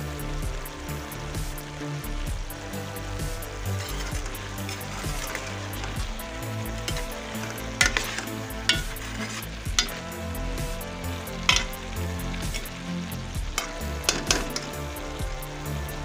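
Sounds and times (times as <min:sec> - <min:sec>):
food sizzling in a pan: 0:00.0 - 0:16.0
spatula scraping a pan: 0:03.7 - 0:10.1, 0:11.4 - 0:11.8, 0:12.4 - 0:12.8.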